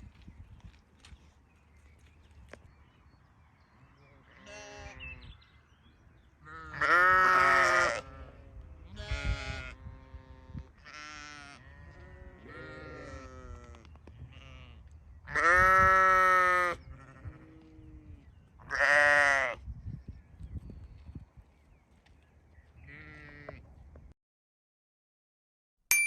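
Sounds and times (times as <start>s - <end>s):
sheep bleating: 4.2s - 5.2s, 6.4s - 18.1s, 18.7s - 19.6s, 22.9s - 23.6s.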